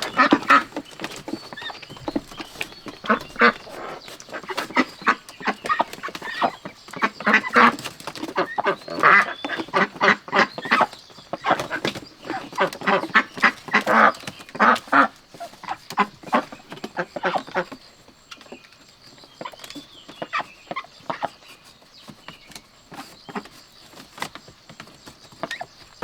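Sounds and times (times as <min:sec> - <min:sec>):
ducks quacking: 0:00.0 - 0:17.8, 0:20.2 - 0:21.4.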